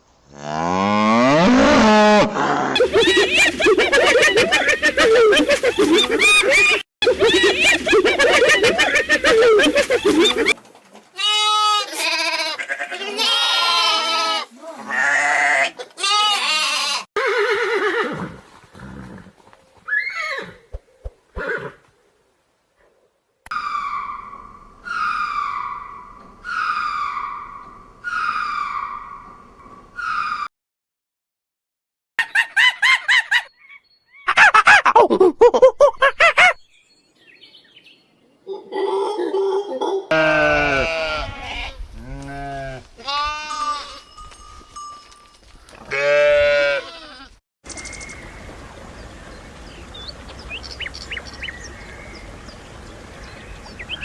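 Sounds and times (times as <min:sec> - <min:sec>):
waterfowl calling: 0:02.8 - 0:10.6, 0:23.5 - 0:30.5
goats bleating: 0:11.2 - 0:17.0, 0:45.9 - 0:47.3.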